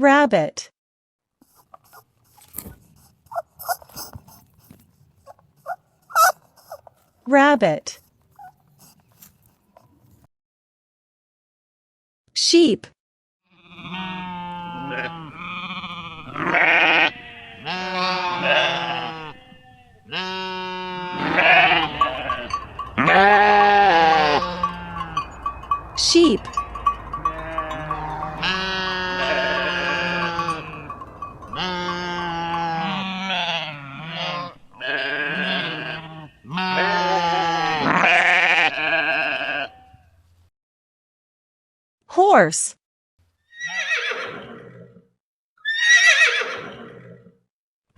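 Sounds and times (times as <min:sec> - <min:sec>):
sheep bleating: 0:06.1 - 0:06.9, 0:13.5 - 0:40.1.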